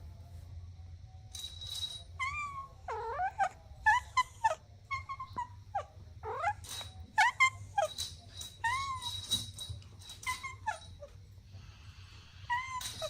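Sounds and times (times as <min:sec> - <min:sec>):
kittens mewing: 0:02.2 - 0:08.0, 0:12.3 - 0:13.0.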